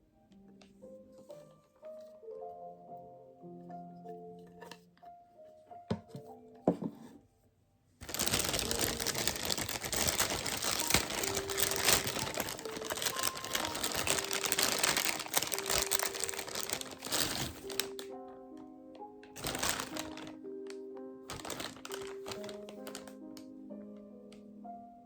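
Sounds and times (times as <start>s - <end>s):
plastic packaging crinkling: 8.0s - 23.4s.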